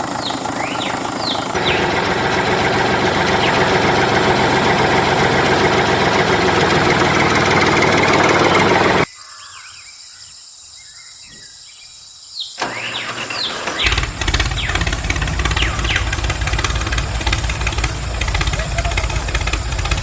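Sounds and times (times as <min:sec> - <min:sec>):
loud steady noise: 0:00.0 - 0:09.1, 0:13.8 - 0:20.0
small engine running: 0:00.0 - 0:09.1, 0:12.6 - 0:20.0
birds chirping: 0:00.0 - 0:20.0.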